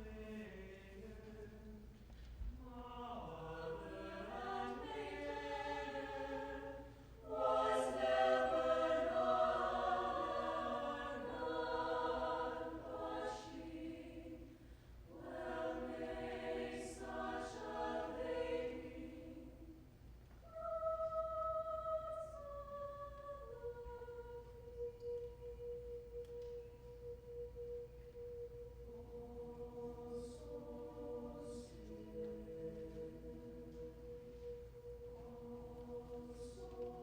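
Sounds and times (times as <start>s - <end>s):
choir singing held chords: 0.0s - 37.0s.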